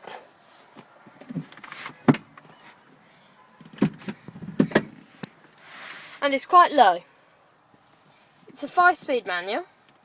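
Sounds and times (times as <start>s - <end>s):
seat clunking on rails: 1.2s - 2.8s, 3.6s - 5.1s.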